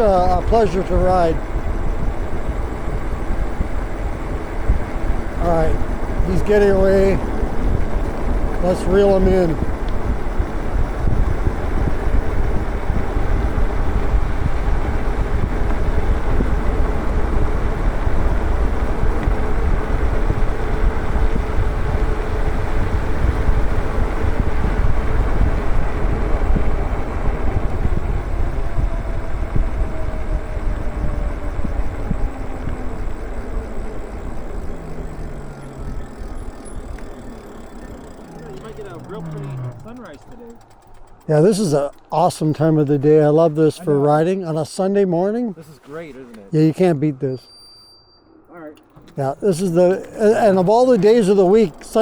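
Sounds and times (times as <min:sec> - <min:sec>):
wind rushing over microphone: 0:00.0 - 0:40.2
faint motor whine: 0:00.0 - 0:46.5, 0:47.6 - 0:52.0
tyre noise on paved road: 0:00.0 - 0:52.0.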